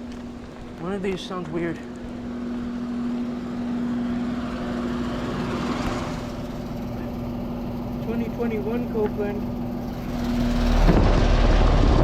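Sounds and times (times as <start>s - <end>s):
compressor hum: 0.0s - 12.0s
condenser fans rushing air: 0.0s - 12.0s.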